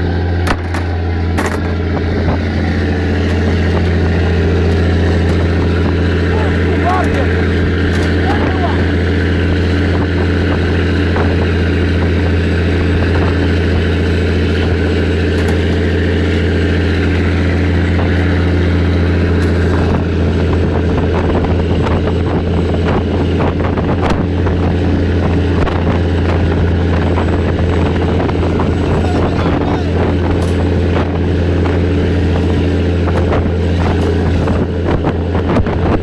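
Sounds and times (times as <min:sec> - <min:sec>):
boat engine humming: 0:00.0 - 0:36.0.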